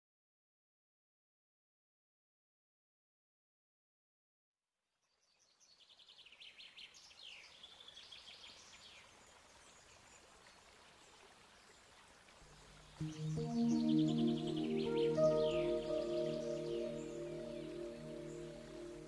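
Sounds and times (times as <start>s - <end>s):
small birds trilling and chirping: 5.1s - 19.0s
low outdoor hiss: 5.2s - 19.0s.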